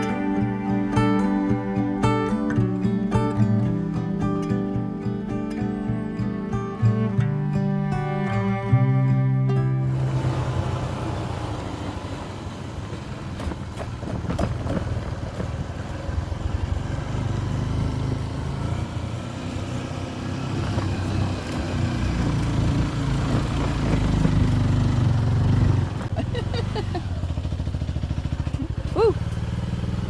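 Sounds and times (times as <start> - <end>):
road and wind noise: 0.0 - 30.0
motorbike engine running: 9.9 - 30.0.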